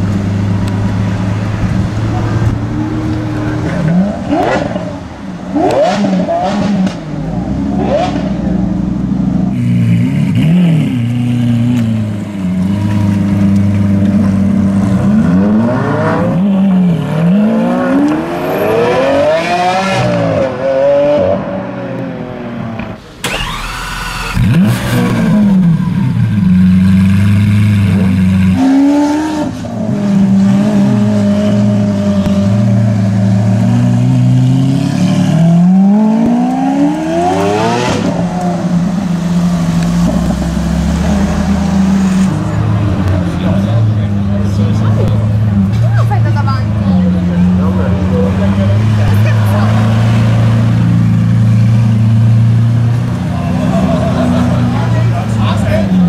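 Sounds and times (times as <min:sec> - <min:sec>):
sports car engine revving: 0:00.0 - 0:56.0
exhaust cracks: 0:22.8 - 0:28.6.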